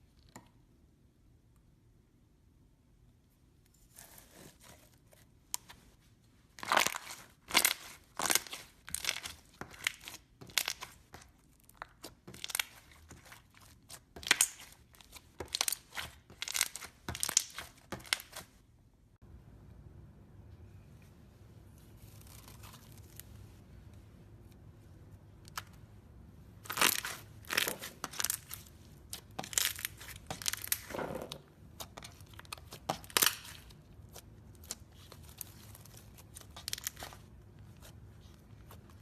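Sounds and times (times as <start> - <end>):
slime crackling and popping: 6.6 - 18.5, 26.6 - 37.8
low hum: 19.2 - 26.6.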